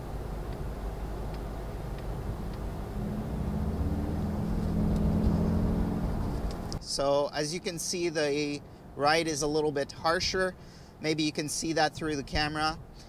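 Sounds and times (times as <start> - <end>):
low engine drone: 0.0 - 6.8
road noise inside car: 0.0 - 7.0.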